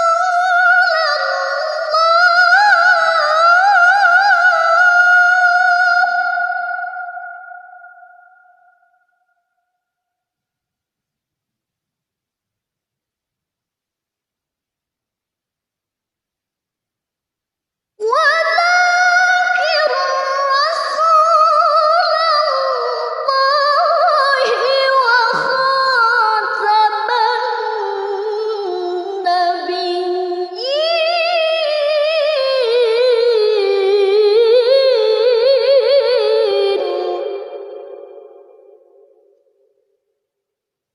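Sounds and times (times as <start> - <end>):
woman chanting melodically: 0.0 - 8.8, 18.0 - 38.7.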